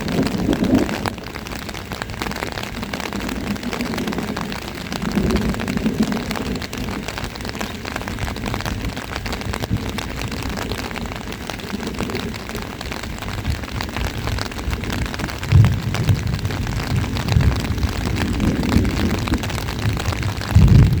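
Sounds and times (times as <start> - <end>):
steady rain: 0.0 - 21.0
deep low rumbles: 15.1 - 21.0.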